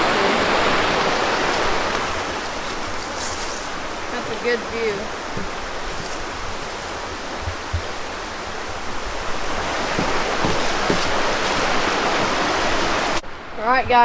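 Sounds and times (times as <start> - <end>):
stream water flowing: 0.0 - 14.0
soft thumps: 1.5 - 13.2.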